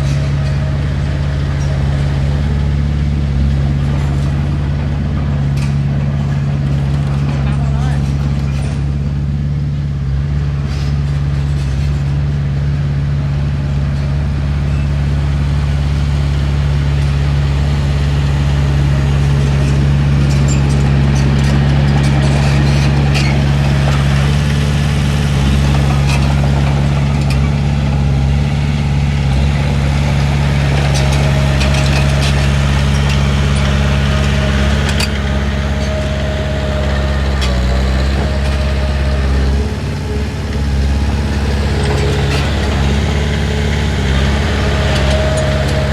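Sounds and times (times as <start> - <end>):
bulldozer diesel engine running: 0.0 - 45.9
metal clanks and knocks: 19.2 - 28.3, 29.2 - 45.9.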